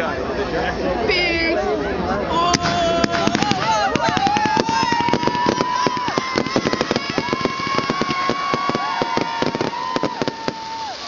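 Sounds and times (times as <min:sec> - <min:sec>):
fireworks crackling: 0:02.5 - 0:11.0
fireworks whistling: 0:02.5 - 0:11.0.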